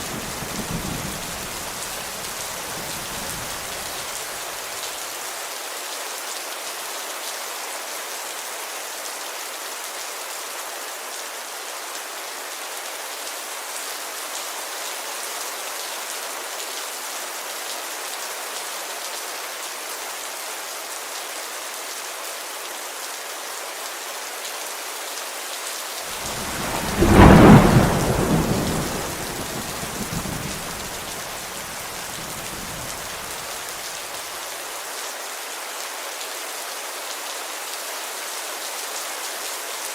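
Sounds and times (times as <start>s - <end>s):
heavy rain on a window: 0.0s - 10.0s, 24.5s - 39.9s
thunderclap rumbling: 26.2s - 33.4s.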